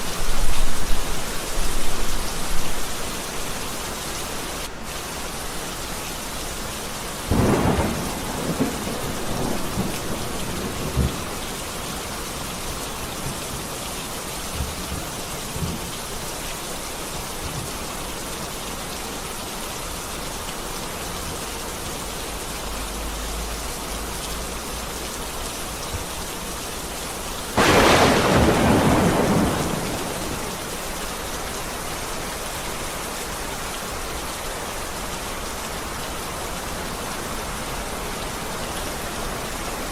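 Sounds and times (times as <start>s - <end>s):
heavy rain: 0.0s - 39.9s
thunder rumbling: 7.3s - 12.3s, 27.6s - 31.0s.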